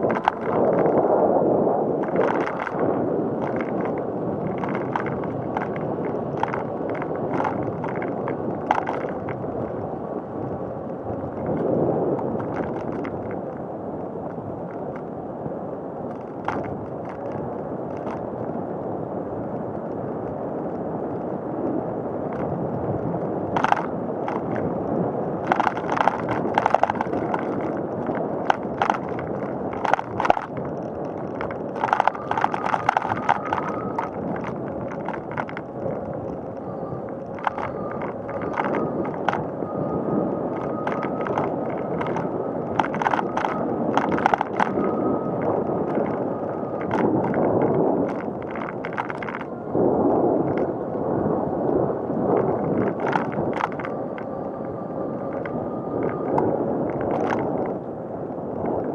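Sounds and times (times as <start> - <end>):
bike clicks and rattles: 0.0 - 1.0, 2.0 - 2.8, 3.4 - 9.8, 10.6 - 13.6, 16.1 - 18.6, 22.3 - 39.6, 40.4 - 49.5, 50.4 - 50.7, 52.4 - 54.3, 55.3 - 57.8
bicycle rolling on pavement: 0.0 - 58.9.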